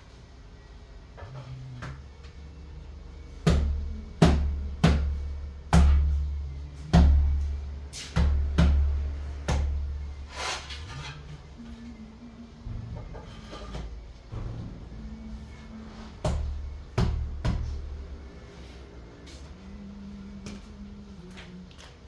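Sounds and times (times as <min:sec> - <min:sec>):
scraping rustle: 0:10.2 - 0:11.5.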